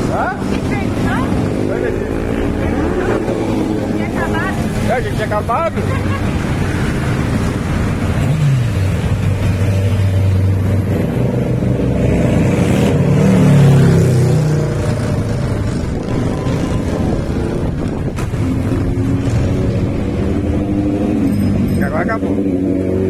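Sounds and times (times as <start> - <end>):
motorcycle engines revving: 0.0 - 23.0.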